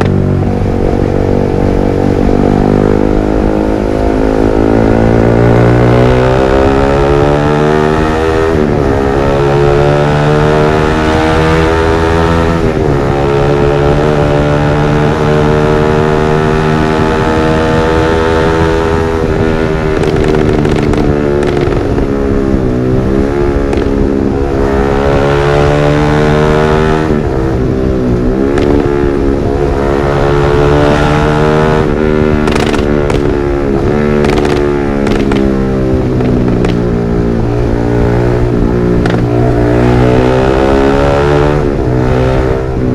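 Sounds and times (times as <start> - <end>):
motorcycle engine revving: 0.0 - 42.9
exhaust crackling pops: 19.9 - 22.1, 23.6 - 24.0, 28.5 - 28.9, 32.4 - 36.9, 38.9 - 39.3.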